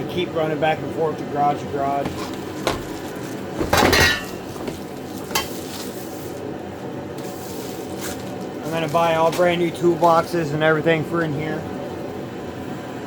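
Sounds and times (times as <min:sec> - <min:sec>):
steady background hum: 0:00.0 - 0:13.0
metal parts clattering: 0:02.0 - 0:05.6.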